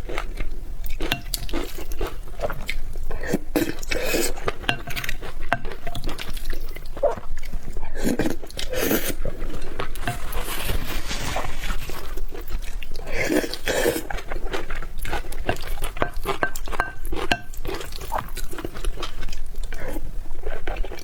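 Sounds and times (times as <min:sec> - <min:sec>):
utensils scraping a bowl: 0:10.0 - 0:12.1, 0:15.3 - 0:18.3
chewing and mouth noises: 0:11.7 - 0:21.0.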